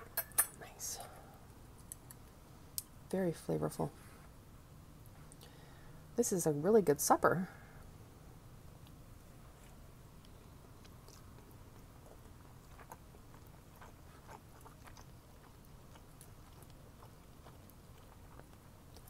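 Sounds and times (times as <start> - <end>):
low steady hum: 0.0 - 19.0
faint chewing: 8.8 - 19.0.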